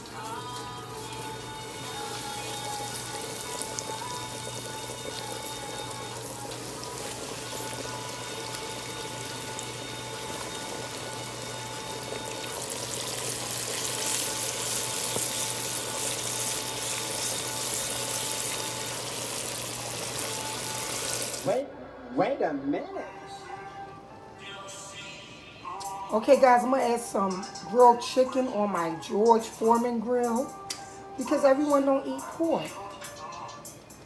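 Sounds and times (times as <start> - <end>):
ribs sizzling in hot oil: 0.0 - 21.5
background music with held notes: 0.0 - 21.7, 22.3 - 34.0.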